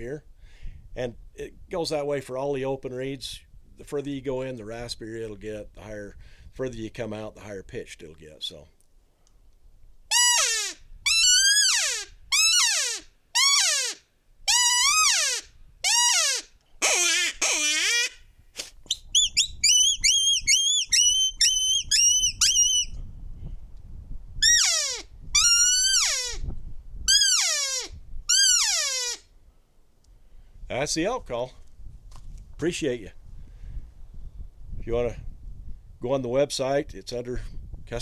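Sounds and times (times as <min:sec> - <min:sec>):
elk call falling in pitch: 0:10.1 - 0:18.2, 0:19.2 - 0:22.9, 0:24.4 - 0:26.4, 0:27.1 - 0:29.2.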